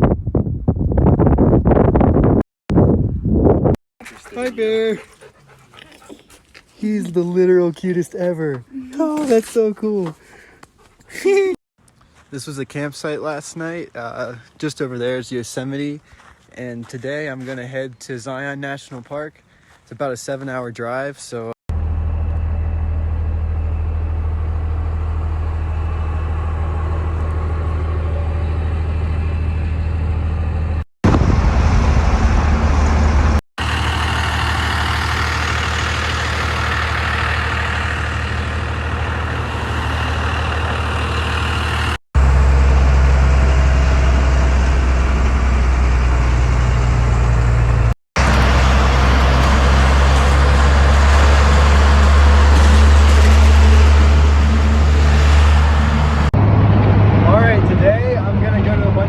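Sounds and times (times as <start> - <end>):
road noise: 4.0 - 17.8, 21.7 - 59.0
truck engine drone: 21.7 - 59.0.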